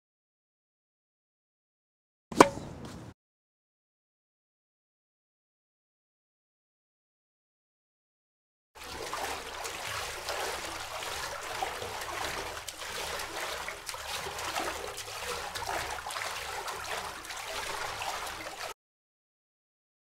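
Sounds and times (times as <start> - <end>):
water splashing and trickling: 8.8 - 18.8.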